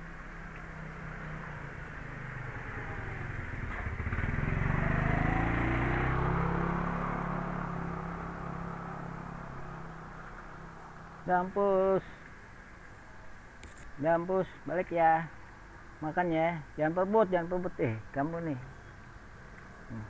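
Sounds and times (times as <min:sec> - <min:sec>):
vehicle engine passing by: 0:00.7 - 0:10.1.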